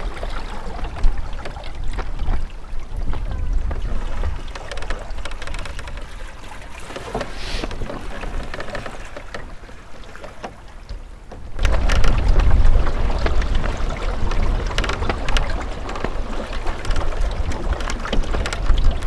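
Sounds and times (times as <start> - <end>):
wind buffeting the microphone: 0.0 - 9.6, 11.2 - 19.0
water splashing against hull: 0.0 - 19.0
small crackles: 4.4 - 9.5, 11.6 - 12.6, 13.2 - 19.0
brief hiss: 7.4 - 7.8.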